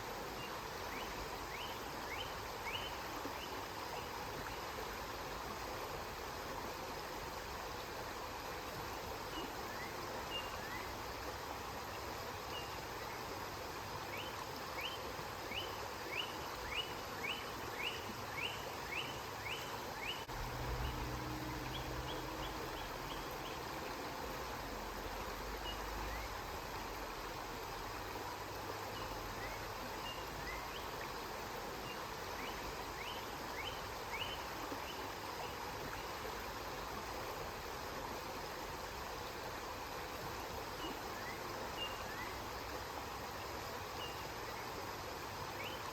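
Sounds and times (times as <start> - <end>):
river water flowing: 0.0 - 45.9
bird chirping: 15.6 - 23.6
low rumble: 20.3 - 23.2.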